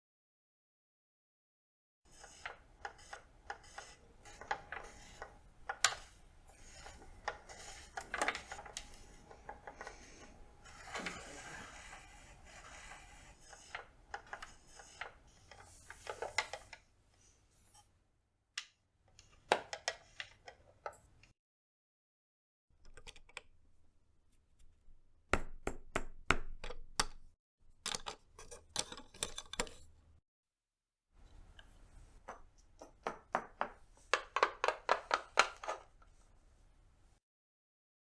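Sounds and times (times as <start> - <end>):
wooden pieces sliding and rubbing: 2.1 - 17.9.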